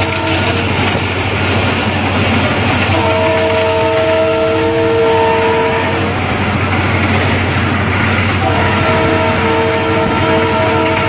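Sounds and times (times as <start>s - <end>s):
locomotive horn chord: 0.0s - 0.7s, 2.8s - 6.2s, 8.4s - 11.0s
train wheels rushing on rail: 0.0s - 11.0s.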